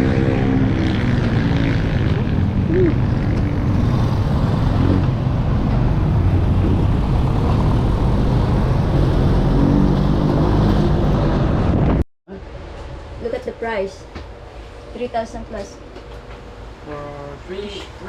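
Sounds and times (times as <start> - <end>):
motorcycle engine drone: 0.0 - 12.0
road and wind noise: 0.0 - 18.0.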